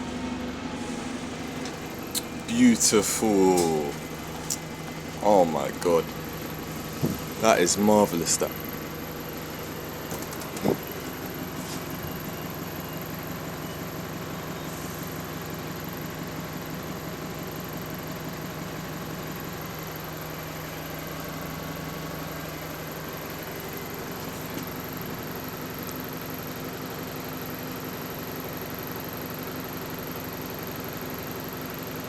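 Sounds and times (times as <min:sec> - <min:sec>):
bus engine running: 0:00.0 - 0:32.0
short thump: 0:07.0 - 0:07.3.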